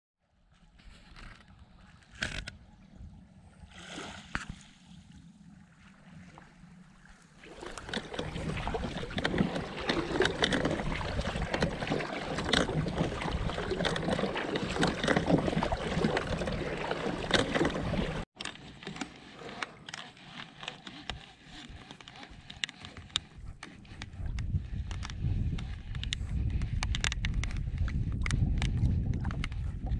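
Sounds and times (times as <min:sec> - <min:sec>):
water splashing around kayak: 0:00.3 - 0:29.9
small knocks and clicks: 0:18.4 - 0:29.7.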